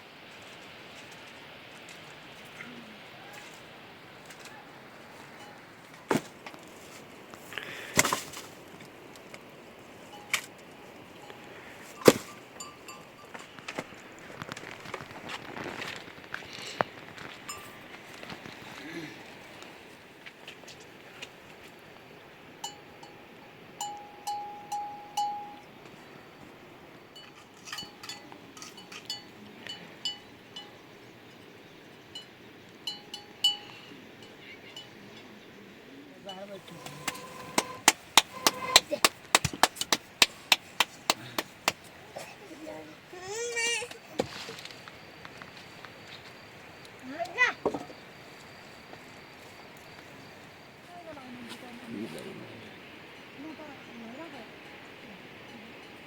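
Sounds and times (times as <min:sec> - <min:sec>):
metal-on-metal clinks: 0:17.5 - 0:17.9, 0:27.2 - 0:30.7.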